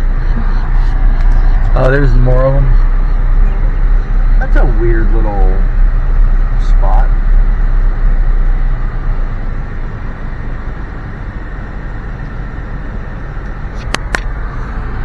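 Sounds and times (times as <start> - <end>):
car road and engine rumble: 0.0 - 15.0
sharp clicks: 13.8 - 14.4.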